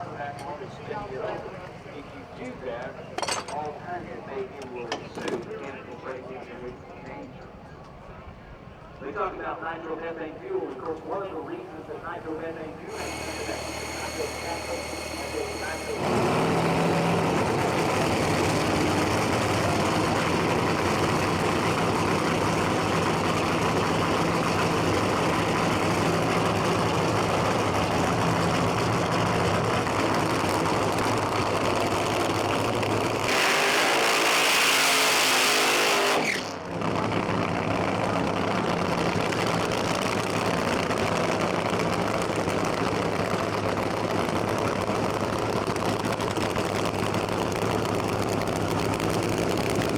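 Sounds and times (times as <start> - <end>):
drag car engine rough idle: 11.0 - 49.9.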